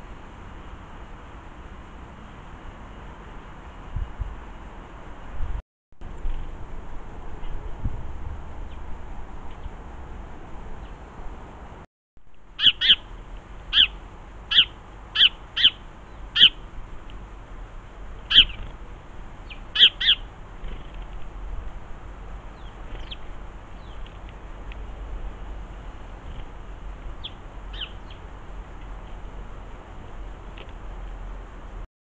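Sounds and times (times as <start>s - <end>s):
steady background hum: 0.0s - 31.8s
bird harsh calls: 12.6s - 13.1s, 13.7s - 16.6s, 18.3s - 18.7s, 19.4s - 21.0s, 27.2s - 28.2s.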